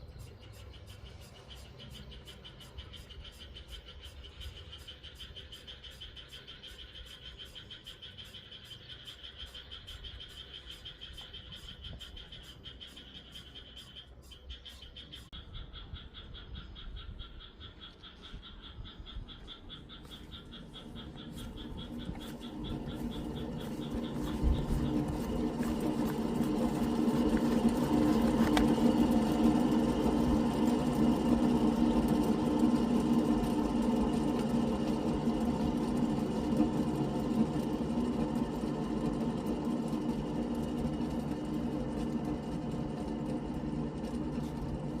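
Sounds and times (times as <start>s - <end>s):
car mechanical whirring drone: 0.0s - 45.0s.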